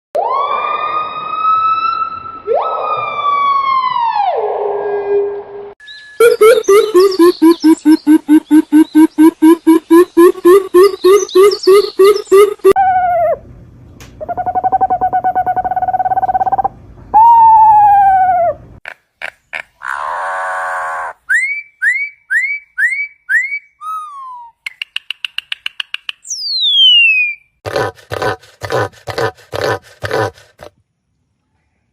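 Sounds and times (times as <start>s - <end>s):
bird calls and whistles: 5.8s - 12.8s, 21.3s - 27.5s.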